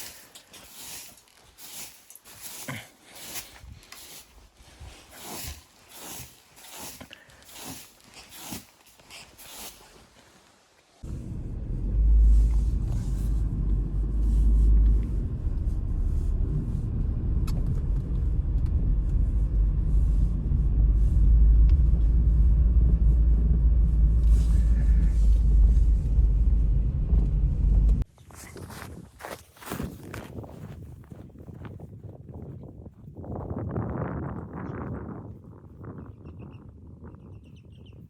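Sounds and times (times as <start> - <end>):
wind buffeting microphone: 28.7 - 38.0.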